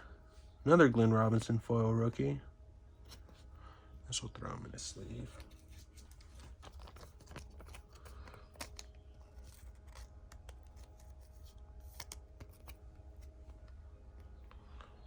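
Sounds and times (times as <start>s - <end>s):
low steady hum: 0.0s - 15.0s
trading cards and sleeves handled: 2.9s - 3.6s, 4.8s - 15.0s.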